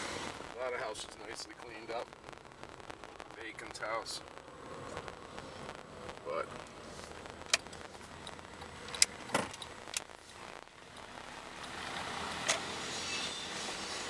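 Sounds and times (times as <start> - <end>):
car driving slowly: 0.0 - 14.0
sharp clicks and knocks: 7.4 - 10.1.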